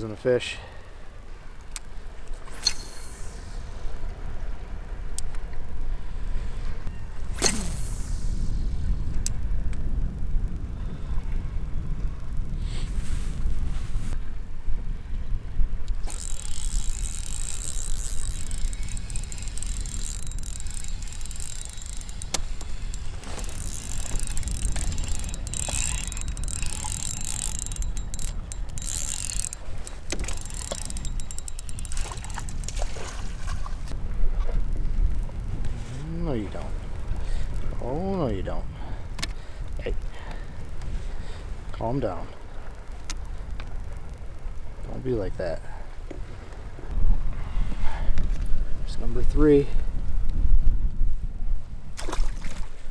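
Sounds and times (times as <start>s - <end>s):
fishing reel ticking: 1.6s - 13.4s, 15.8s - 50.4s
wind buffeting microphone: 3.3s - 41.8s
sharp clicks: 15.8s - 33.1s.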